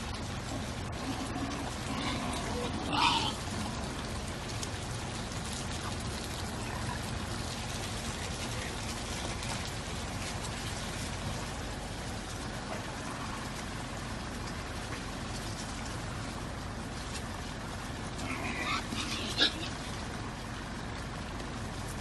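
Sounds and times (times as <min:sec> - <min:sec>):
low steady rumble: 0:00.0 - 0:22.0
rain patter: 0:00.0 - 0:22.0.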